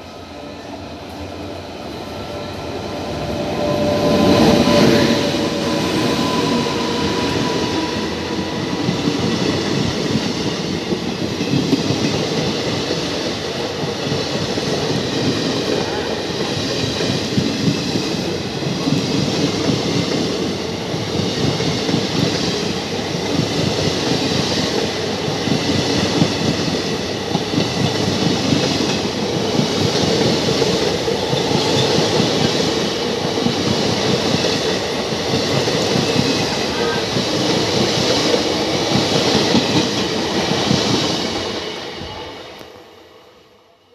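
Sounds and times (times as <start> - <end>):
train wheels rumbling on rail: 0.0 - 42.9
clickety-clack over rail joints: 8.7 - 41.3.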